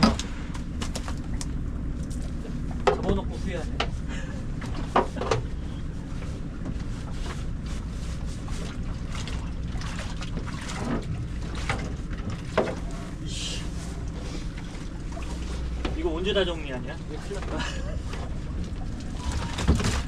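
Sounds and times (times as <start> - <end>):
boat engine droning: 0.0 - 20.0
knocks and clatter on deck: 2.8 - 3.2, 10.8 - 12.8.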